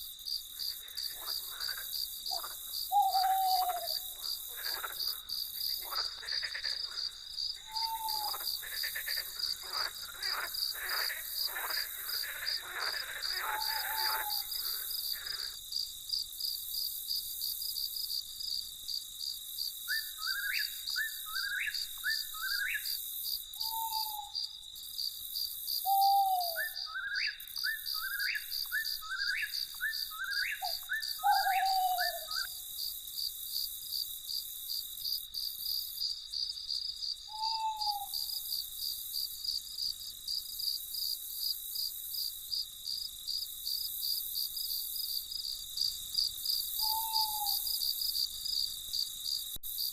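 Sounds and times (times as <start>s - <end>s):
crickets chirping: 0.0s - 49.9s
low falling hoot-like calls: 2.3s - 4.2s, 7.6s - 8.5s, 13.2s - 15.4s, 25.9s - 26.9s, 30.3s - 32.5s, 37.3s - 38.4s, 46.8s - 47.8s.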